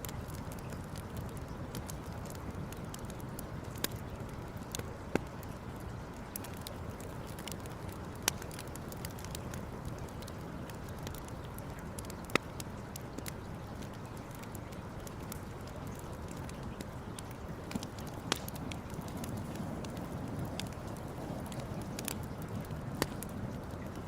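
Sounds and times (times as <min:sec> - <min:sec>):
burning wood popping: 0:00.0 - 0:24.0
campfire crackling: 0:00.0 - 0:24.0
steady low rush: 0:17.5 - 0:24.0.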